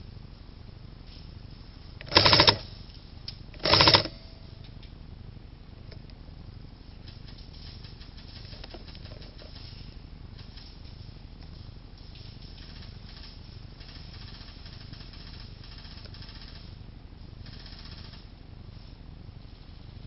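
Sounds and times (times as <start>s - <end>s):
airsoft gun full-auto bursts: 2.0s - 2.7s, 3.6s - 4.2s, 12.6s - 16.8s, 17.4s - 18.2s.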